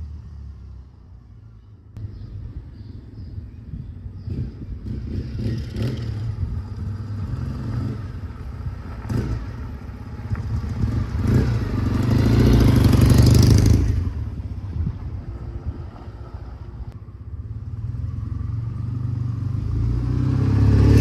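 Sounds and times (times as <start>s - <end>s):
motorcycle engine revving: 4.2s - 14.6s, 17.3s - 21.0s.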